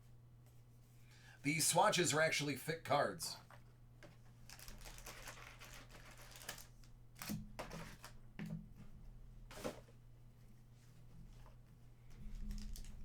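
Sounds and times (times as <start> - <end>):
trading cards rustling: 4.5 - 6.7.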